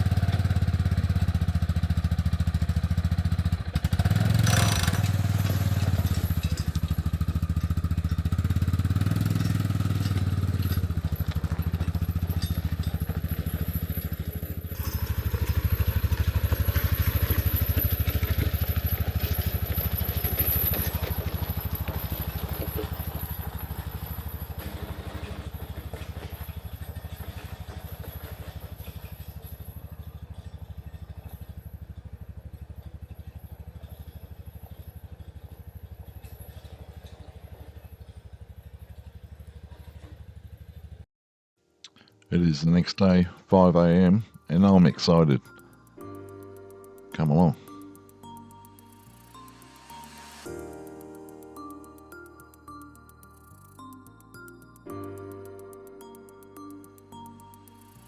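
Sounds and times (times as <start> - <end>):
engine running steadily: 0.0 - 41.0.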